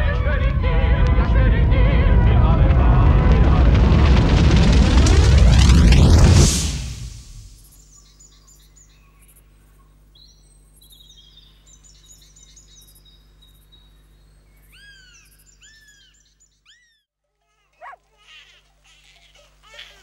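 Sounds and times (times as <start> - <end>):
low steady hum: 0.0 - 16.6
birds chirping and trilling: 7.7 - 17.1
rising and falling bird calls: 14.6 - 17.1.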